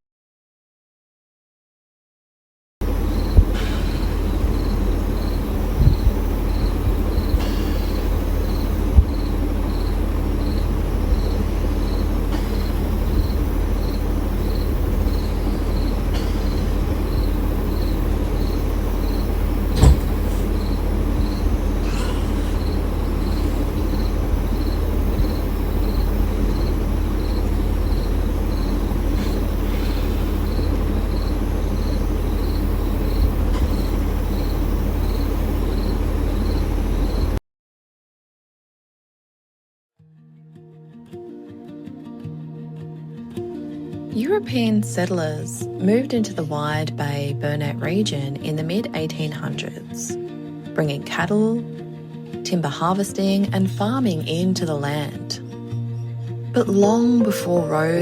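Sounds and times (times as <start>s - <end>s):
steady low rumble: 2.8s - 37.4s
insect chirping: 2.9s - 37.4s
short sharp knocks: 19.7s - 20.5s.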